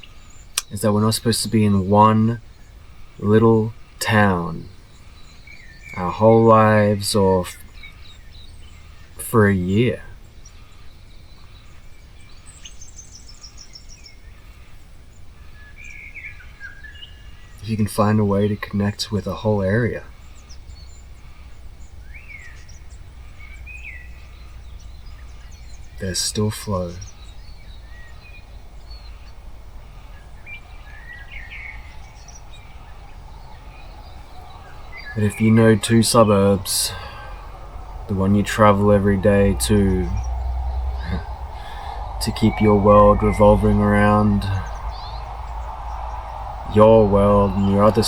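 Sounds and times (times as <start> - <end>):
faint bird calls: 0.0 - 48.0
low background noise: 0.0 - 48.0
steady low rumble: 17.7 - 48.0
bird trilling: 18.9 - 48.0.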